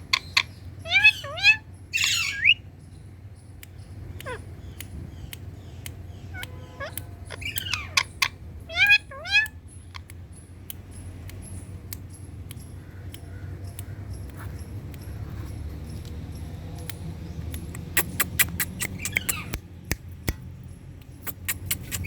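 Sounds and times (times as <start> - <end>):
parrot calls: 0.1 - 2.6, 4.2 - 4.5, 6.3 - 10.0, 17.8 - 19.6, 21.3 - 22.0
faint regular ticking: 2.6 - 22.0.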